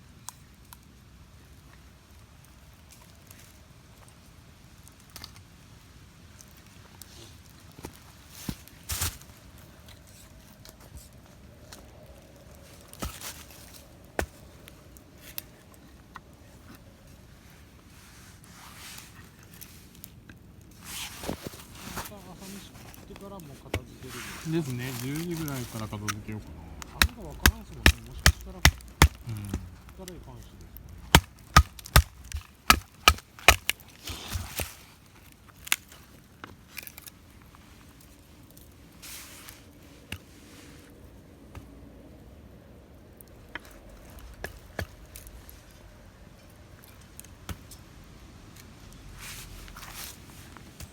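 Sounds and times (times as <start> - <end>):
scraping and rustling: 6.8 - 41.0, 48.6 - 50.9
wood snapping and crackling: 19.2 - 38.7.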